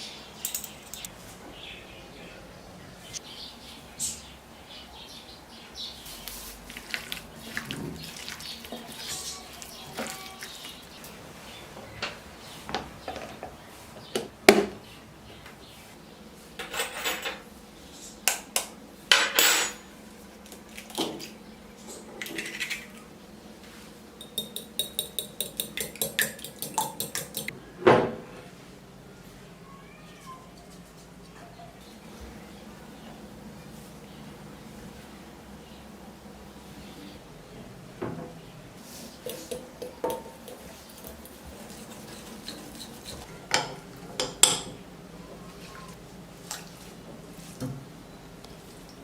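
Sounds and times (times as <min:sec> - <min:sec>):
metal utensils clinking on pots: 0:00.4 - 0:01.1, 0:24.2 - 0:27.5
rapid tapping in a bowl: 0:24.2 - 0:27.5, 0:39.2 - 0:43.2.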